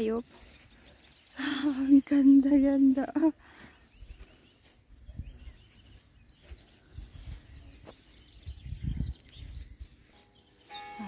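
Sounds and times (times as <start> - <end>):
faint birds chirping: 0.0 - 11.0
low rumbling on microphone: 6.9 - 10.1.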